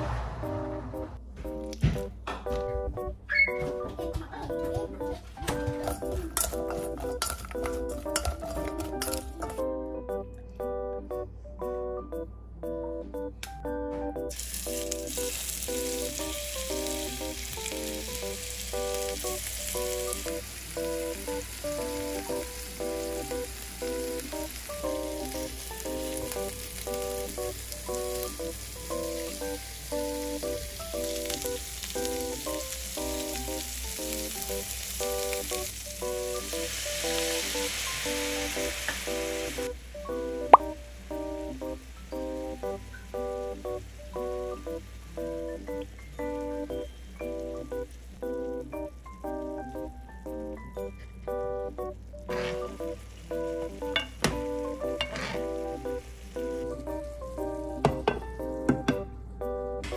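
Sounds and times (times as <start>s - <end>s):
meatballs sizzling in a frying pan: 14.3s - 50.6s, 51.6s - 57.8s.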